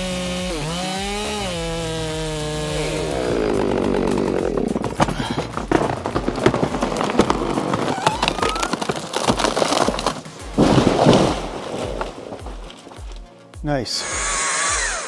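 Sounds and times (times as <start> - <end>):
branches breaking and crashing: 0.0 - 13.6
wood cracking and creaking: 1.2 - 13.6
background music with steady beat: 10.2 - 15.0.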